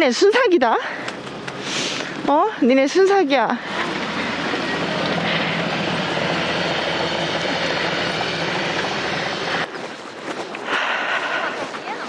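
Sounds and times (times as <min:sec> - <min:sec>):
strong wind blowing: 0:03.6 - 0:09.7.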